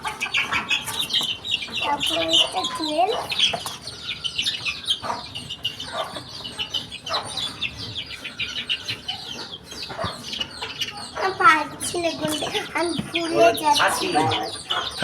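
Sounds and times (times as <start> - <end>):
baby chicks peeping: 0.0 - 15.0.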